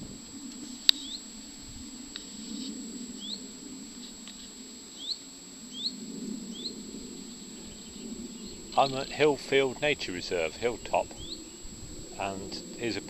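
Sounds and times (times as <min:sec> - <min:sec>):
small bird short rising calls: 0:00.0 - 0:09.2.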